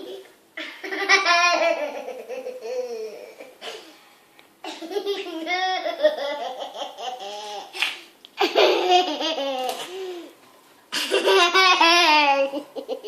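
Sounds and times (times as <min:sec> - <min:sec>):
high-pitched laughter: 0:11.0 - 0:13.0.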